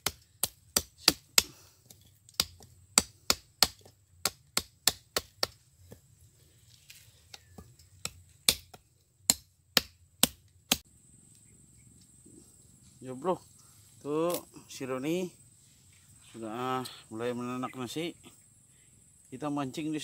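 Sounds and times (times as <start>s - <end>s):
blade chopping into wood: 0.0s - 5.6s, 8.0s - 10.8s.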